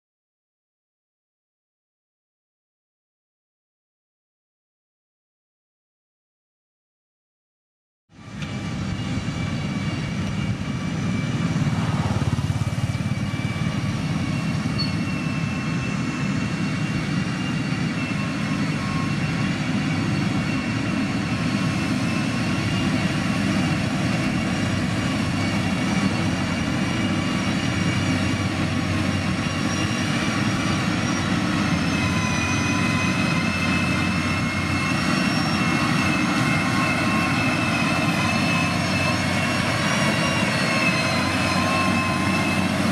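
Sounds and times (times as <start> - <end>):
steady high whine: 8.2 - 42.9.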